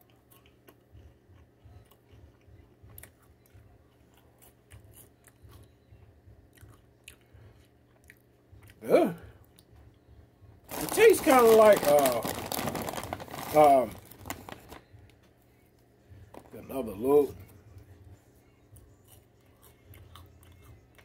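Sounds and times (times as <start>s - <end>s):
crunchy snack chewing: 0.0s - 5.7s, 10.7s - 14.8s, 18.8s - 21.0s.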